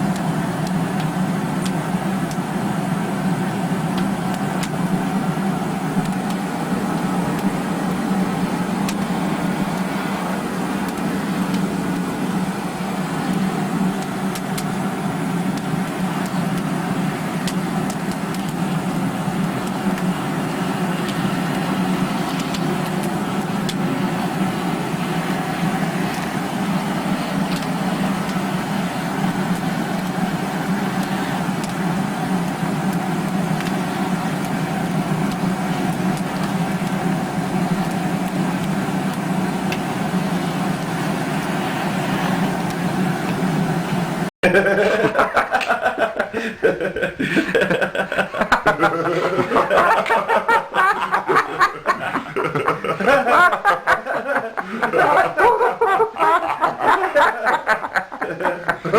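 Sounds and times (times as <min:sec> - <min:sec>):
fire crackling faintly: 0:00.0 - 0:44.3
vacuum cleaner motor humming: 0:00.0 - 0:46.1, 0:48.4 - 0:53.6.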